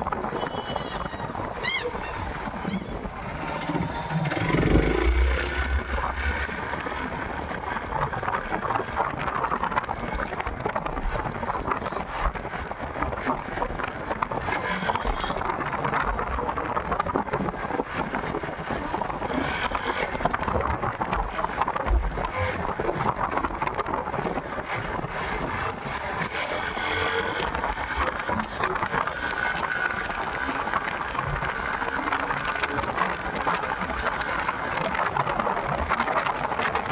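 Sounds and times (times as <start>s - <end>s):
road noise: 0.0s - 36.9s
wind rushing over microphone: 0.0s - 36.9s
motorcycle engine: 0.2s - 8.0s.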